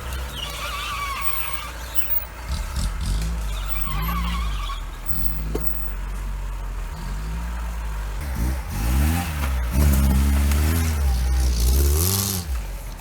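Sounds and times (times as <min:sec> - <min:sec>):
vehicle engine rumbling: 0:00.0 - 0:13.0
wavering high squeal: 0:00.3 - 0:02.3, 0:03.5 - 0:05.4.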